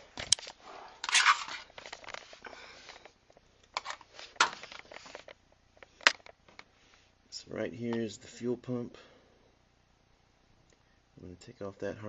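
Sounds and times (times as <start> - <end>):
hand tools clicking and rustling: 0.2 - 2.3.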